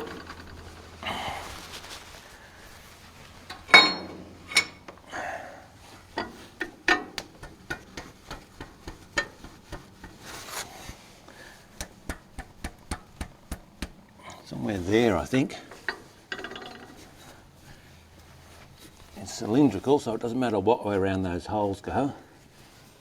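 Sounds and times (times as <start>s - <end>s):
ringing metal clang: 3.7s - 4.8s.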